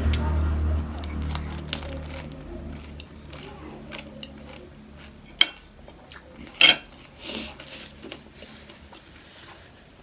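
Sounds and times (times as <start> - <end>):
utensils clinking against dishes: 6.4 - 7.8.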